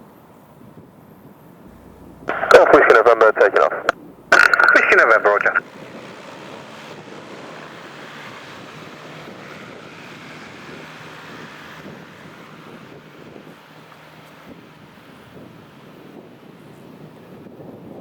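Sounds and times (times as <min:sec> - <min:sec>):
airplane engine droning: 0:01.7 - 0:06.3.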